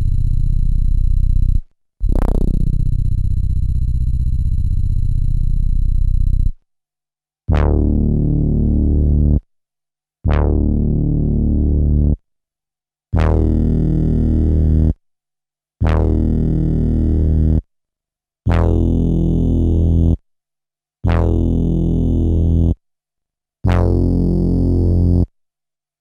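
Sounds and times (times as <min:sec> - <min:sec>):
synthesizer bass note: 0:00.0 - 0:06.6.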